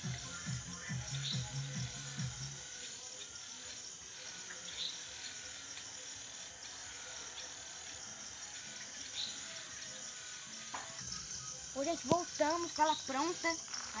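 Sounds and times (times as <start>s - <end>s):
crickets chirping: 0.0s - 14.0s
faint ticks: 5.7s - 6.0s.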